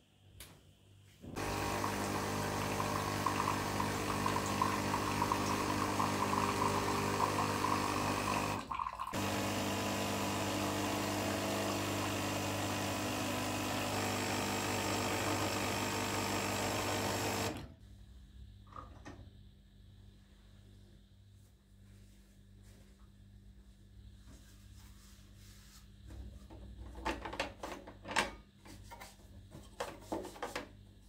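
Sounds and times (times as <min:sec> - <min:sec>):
kitchen appliance motor running: 0:01.4 - 0:17.6.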